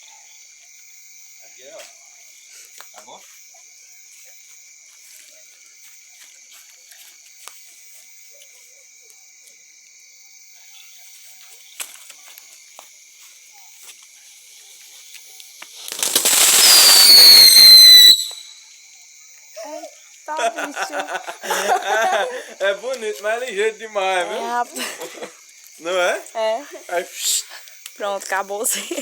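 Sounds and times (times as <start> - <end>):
firework hissing: 13.8 - 18.6, 27.0 - 28.0
firework shrill whistle: 15.6 - 18.7.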